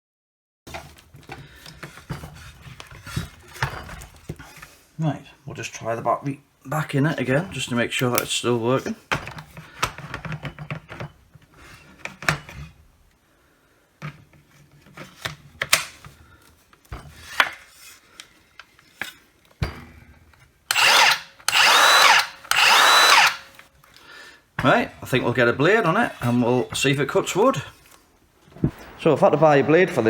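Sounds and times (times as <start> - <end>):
clicks and knocks of handling: 14.0 - 20.5
circular saw motor spinning up: 20.7 - 23.6.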